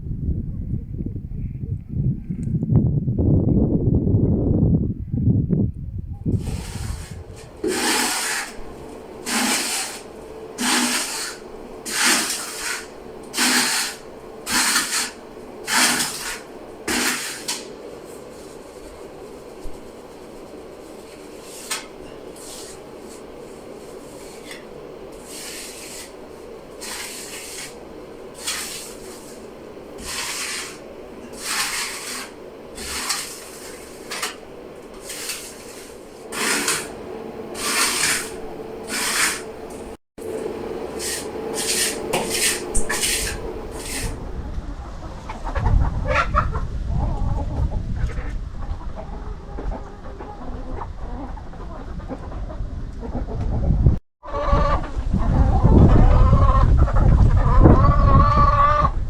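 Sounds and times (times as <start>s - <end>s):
faint steady hum: 0.0s - 45.6s
scraping strokes: 6.4s - 44.4s.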